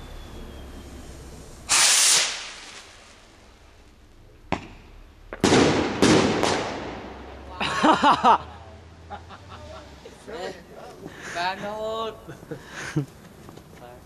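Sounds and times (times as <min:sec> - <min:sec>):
firework bangs: 0:00.0 - 0:07.5
firework rocket launching hiss: 0:00.6 - 0:07.3.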